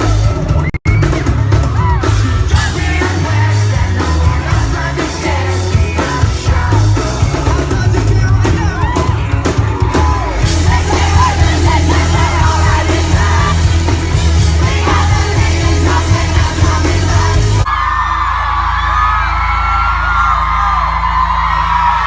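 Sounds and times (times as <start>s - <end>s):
live pop-rock band: 0.0s - 17.8s
crowd screaming: 0.0s - 22.0s
crowd yelling and singing along: 0.0s - 22.0s
steady low note: 10.4s - 17.7s.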